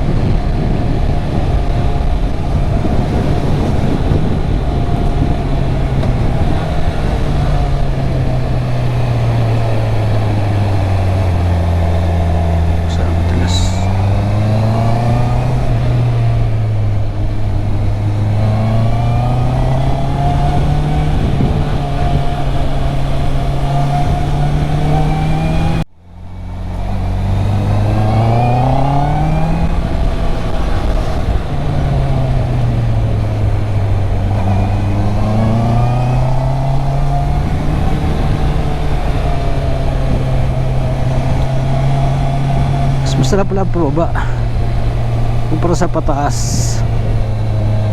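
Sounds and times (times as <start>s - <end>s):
wind noise: 0.0s - 25.8s, 26.8s - 47.9s
motorcycle engine revving: 0.0s - 47.9s.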